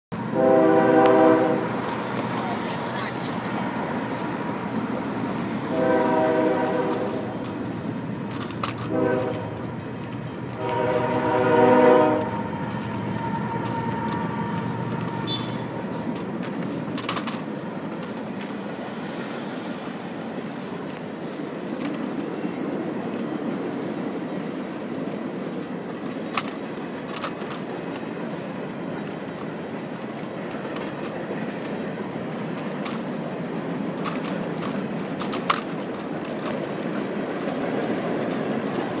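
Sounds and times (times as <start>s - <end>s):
freight cars rumbling past: 0.1s - 39.0s
locomotive horn blasts: 0.2s - 1.9s, 5.6s - 7.5s, 8.7s - 9.8s, 10.5s - 15.8s.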